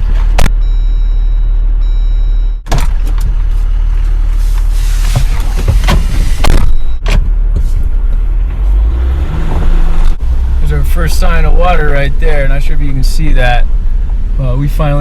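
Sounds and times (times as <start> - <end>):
engine and tyres rumbling: 0.0 - 15.0.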